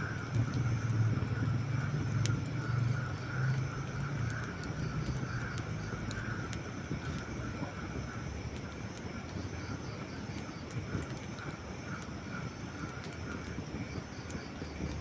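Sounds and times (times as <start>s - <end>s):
campfire crackling and popping: 0.0s - 15.0s
steady low rumble: 0.0s - 15.0s.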